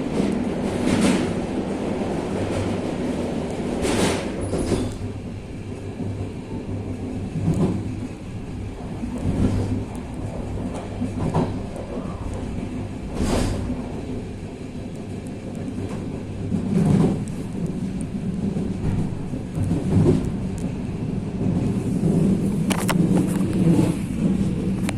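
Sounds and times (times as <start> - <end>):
railcar rumble and hum: 0.0 - 24.9.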